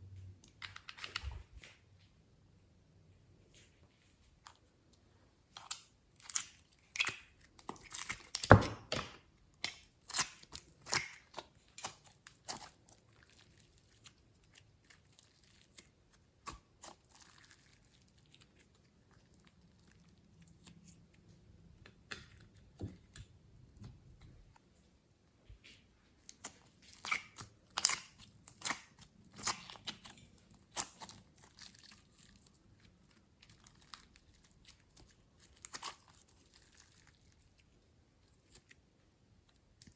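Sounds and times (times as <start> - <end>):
slime crackling and popping: 9.6 - 21.0, 26.3 - 37.8.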